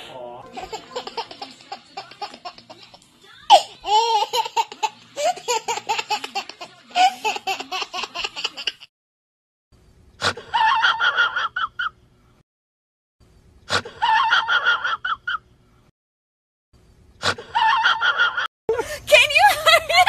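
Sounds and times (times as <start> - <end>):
baby laughing: 0.5 - 8.9.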